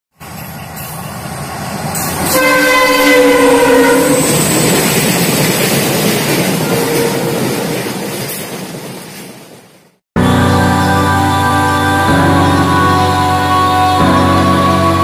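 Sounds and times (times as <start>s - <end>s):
train rumbling past: 0.2s - 15.0s
locomotive horn blast: 2.2s - 4.4s, 6.6s - 7.5s.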